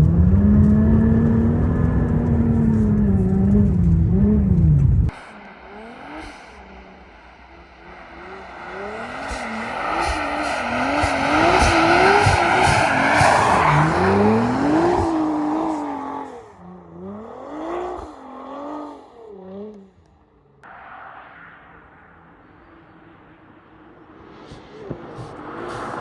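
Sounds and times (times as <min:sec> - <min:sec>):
car engine revving: 0:00.0 - 0:26.0
car passing rush of noise: 0:05.1 - 0:19.7, 0:20.6 - 0:26.0.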